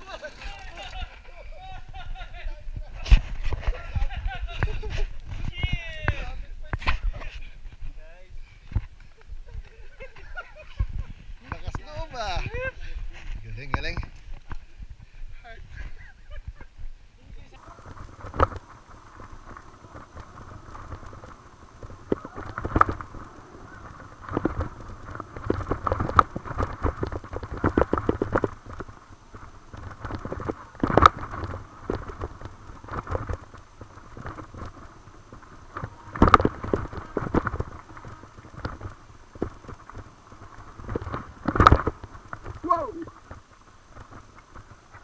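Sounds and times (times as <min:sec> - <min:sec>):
mountain bike rattling on rough trail: 0:00.0 - 0:06.3, 0:17.6 - 0:45.0
steady low rumble: 0:17.6 - 0:45.0.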